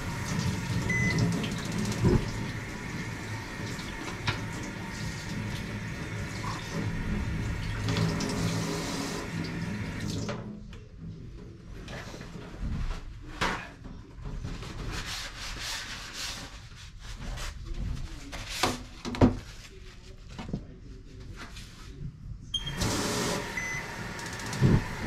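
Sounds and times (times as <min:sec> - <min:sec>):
rubbing and scraping at sink: 0:14.2 - 0:20.6, 0:24.4 - 0:25.0.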